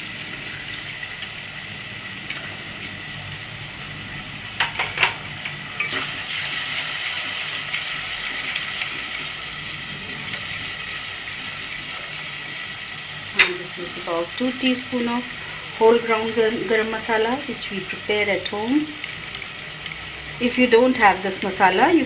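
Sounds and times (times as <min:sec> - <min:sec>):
masala sizzling in oil: 0:00.0 - 0:22.0.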